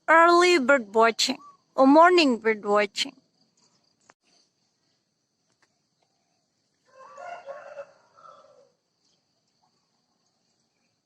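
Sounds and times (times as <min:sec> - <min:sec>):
rooster crowing: 0:06.9 - 0:08.8.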